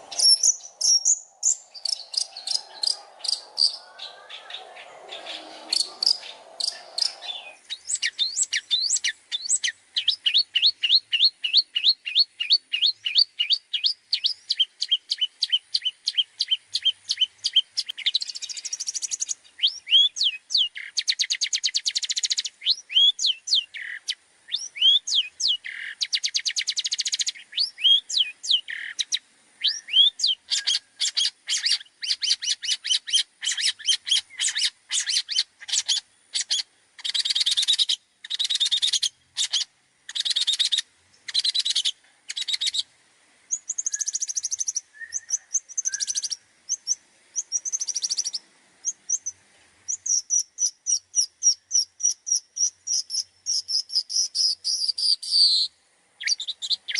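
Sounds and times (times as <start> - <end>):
harsh bird chattering: 0.0 - 11.2
bird singing varied song: 0.0 - 42.9, 43.5 - 56.9
sharp whistled bird calls: 0.0 - 42.9, 43.5 - 56.9.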